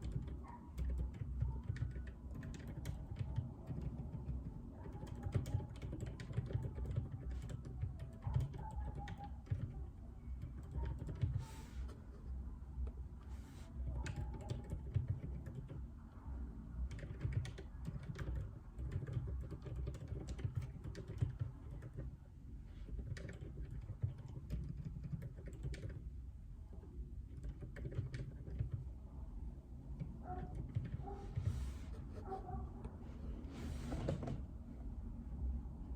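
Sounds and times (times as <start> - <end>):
typing on mechanical keyboard: 0.0 - 11.6, 13.8 - 15.9, 16.8 - 22.2, 22.8 - 26.1, 27.2 - 29.0, 30.0 - 31.6.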